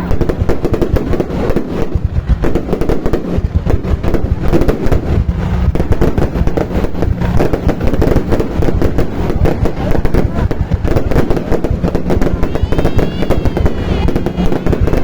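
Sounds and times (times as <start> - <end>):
fireworks cracking and banging: 0.0 - 15.0.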